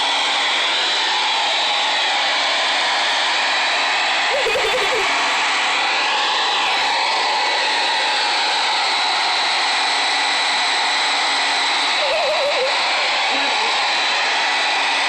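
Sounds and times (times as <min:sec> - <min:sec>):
hairdryer blowing: 0:00.0 - 0:15.0
wavering voice-like sound: 0:04.3 - 0:05.2, 0:12.0 - 0:13.8.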